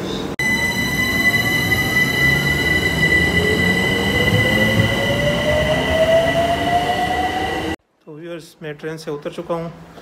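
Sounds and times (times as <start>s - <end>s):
train squealing: 0.4s - 7.8s
train whine rising: 0.4s - 7.8s.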